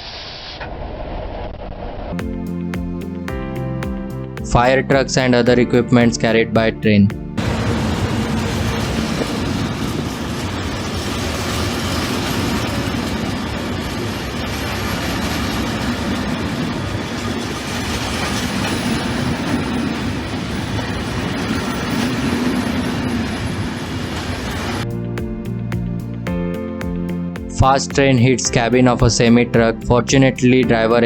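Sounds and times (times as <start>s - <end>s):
train wheels on rails: 7.4s - 24.9s.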